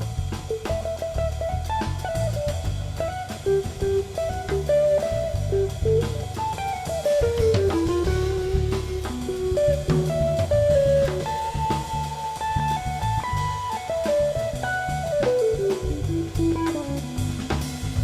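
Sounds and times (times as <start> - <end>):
jazz trio playing: 0.0 - 18.0.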